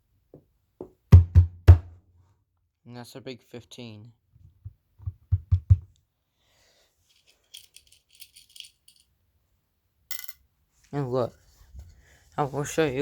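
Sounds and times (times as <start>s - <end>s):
small metal pieces rattling: 7.1s - 9.0s.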